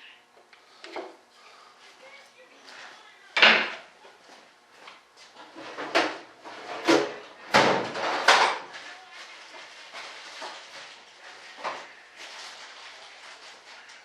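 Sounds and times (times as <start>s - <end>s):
rustling and scraping: 4.1s - 7.2s, 7.9s - 14.0s.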